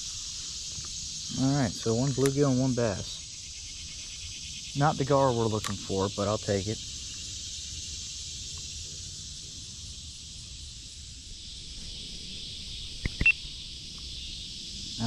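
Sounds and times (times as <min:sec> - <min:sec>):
crickets trilling: 0:00.0 - 0:15.0
sharp clicks: 0:02.2 - 0:02.4, 0:05.6 - 0:05.8, 0:13.0 - 0:13.4.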